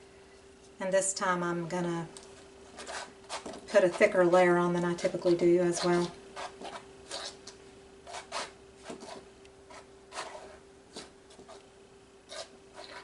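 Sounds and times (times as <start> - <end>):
paint scraping on canvas: 2.7 - 4.2, 5.2 - 7.5, 8.1 - 11.6, 12.3 - 13.0.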